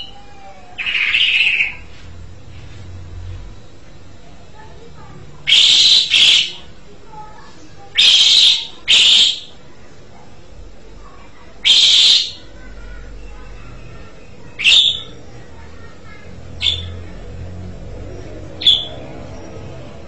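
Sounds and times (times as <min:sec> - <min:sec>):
starling harsh calls: 0:00.0 - 0:01.9, 0:05.0 - 0:06.7, 0:07.8 - 0:09.6, 0:11.6 - 0:20.0.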